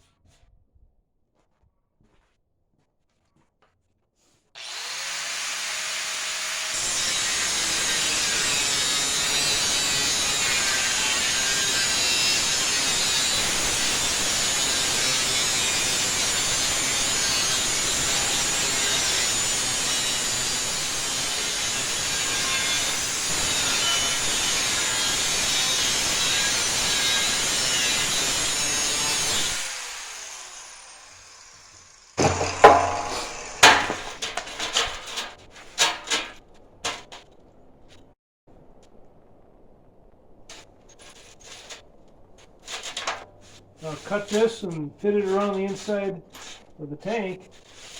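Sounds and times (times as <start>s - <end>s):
power tool running: 4.6s - 5.8s, 29.6s - 34.4s
metal clanks and knocks: 32.2s - 37.4s.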